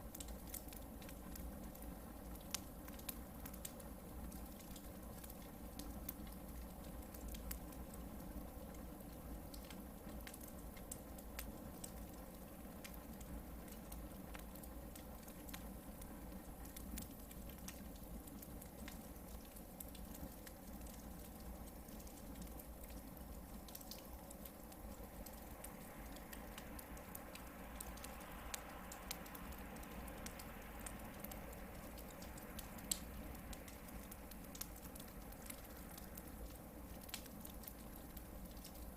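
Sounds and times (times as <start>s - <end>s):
campfire crackling and popping: 0.0s - 38.9s
soft hiss: 0.0s - 38.9s.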